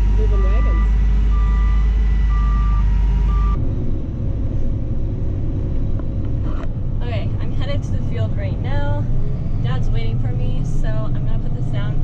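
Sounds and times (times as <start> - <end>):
reversing alarm beeping: 0.0 - 3.6
diesel engine running: 0.0 - 12.0.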